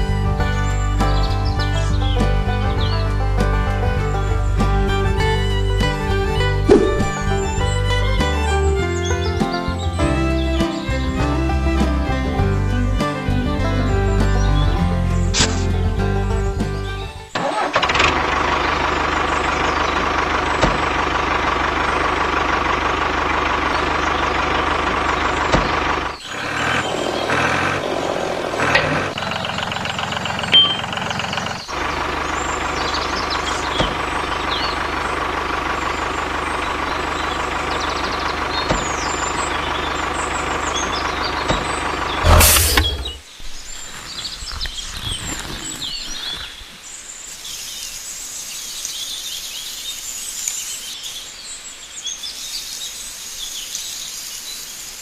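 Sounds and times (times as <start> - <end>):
tractor engine running: 0.0 - 44.1
faint bird chirps: 29.2 - 35.0
loud knock: 42.2 - 43.2.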